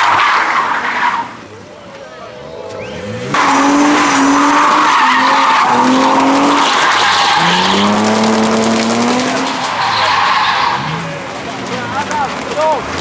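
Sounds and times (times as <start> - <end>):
car engine revving: 2.2 - 13.0
tyre screech: 2.4 - 11.2.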